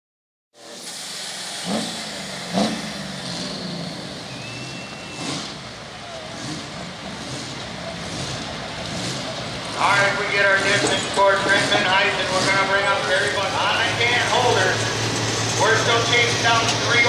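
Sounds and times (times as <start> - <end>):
short sharp peaks: 0.6 - 5.8
diesel truck engine running: 0.6 - 17.0.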